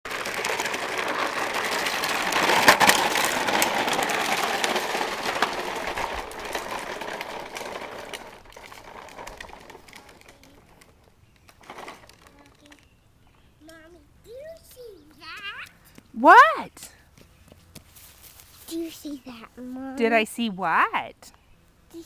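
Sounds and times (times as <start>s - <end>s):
plastic toy truck rattling: 0.1s - 13.0s.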